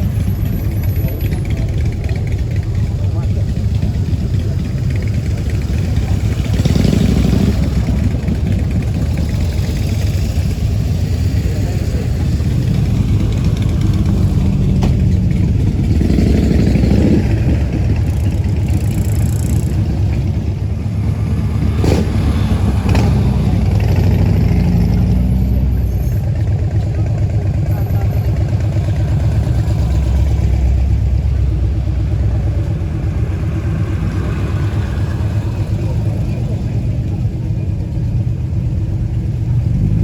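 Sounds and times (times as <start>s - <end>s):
car engine revving: 0.0s - 26.2s.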